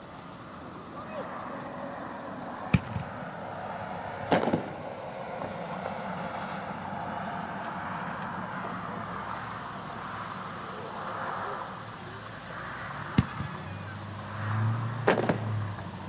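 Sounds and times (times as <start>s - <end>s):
distant firework bang: 2.6s - 3.4s, 4.3s - 5.6s, 13.1s - 13.9s, 15.0s - 15.8s.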